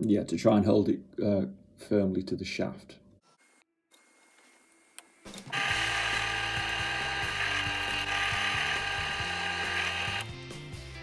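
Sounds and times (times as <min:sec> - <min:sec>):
drill press boring plastic: 0:03.9 - 0:10.3.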